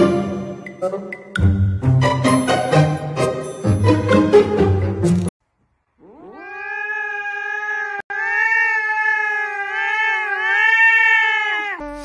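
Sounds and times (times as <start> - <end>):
cat yowling: 6.0 - 12.0.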